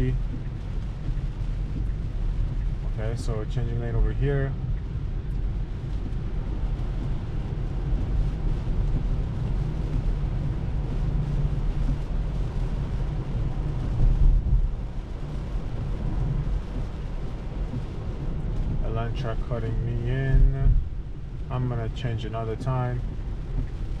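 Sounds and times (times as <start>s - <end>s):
tyres rumbling on wet road: 0.0s - 24.0s
low thump: 20.2s - 21.0s.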